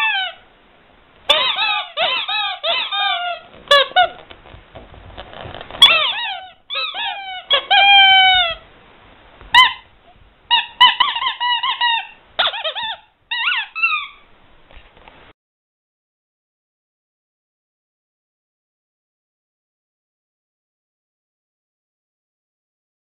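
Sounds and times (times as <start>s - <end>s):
rubber squeaky toy squeaking: 0.0s - 0.4s, 1.3s - 4.5s, 5.2s - 8.6s, 9.5s - 14.3s.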